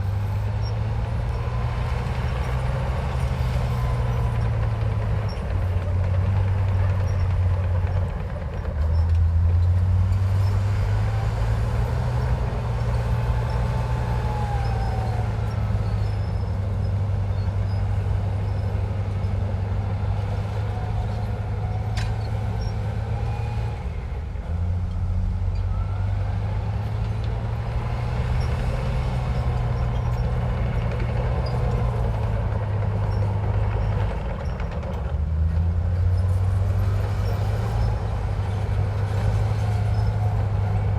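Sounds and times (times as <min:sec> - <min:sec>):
bulldozer diesel engine droning: 0:00.0 - 0:40.9
faint squeals: 0:10.1 - 0:23.8.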